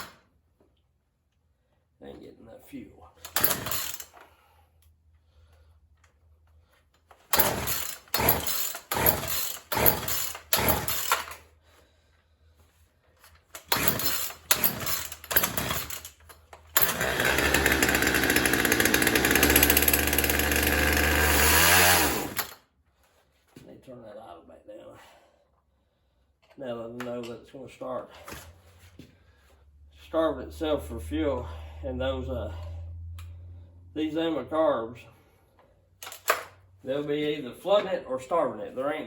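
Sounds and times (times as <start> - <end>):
chainsaw starter cord pulls: 3.2 - 4.4, 7.1 - 11.5, 13.4 - 22.6, 36.0 - 36.5
chainsaw running at high idle: 3.4 - 4.0, 7.4 - 11.4, 13.7 - 16.1, 16.8 - 22.6.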